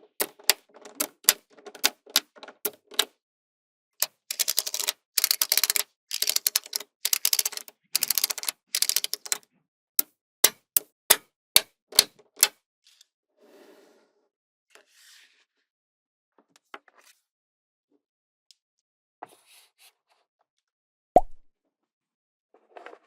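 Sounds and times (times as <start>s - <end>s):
magnetic balls clicking: 4.3s - 9.4s.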